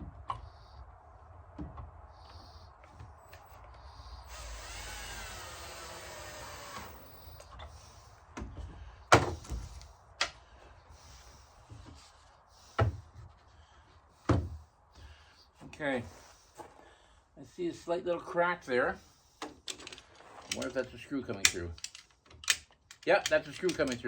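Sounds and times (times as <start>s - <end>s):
cordless drill driving screw: 4.3s - 7.5s.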